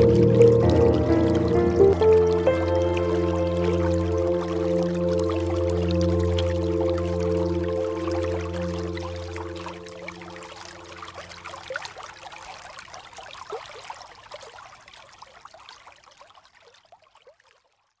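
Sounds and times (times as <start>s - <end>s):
rain drops splashing: 0.0s - 14.4s.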